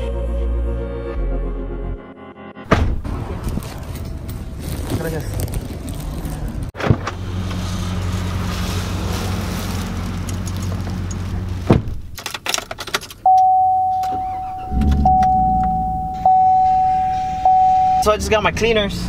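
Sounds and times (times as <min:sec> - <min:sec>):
electronic warning tone: 0:13.3 - 0:18.2.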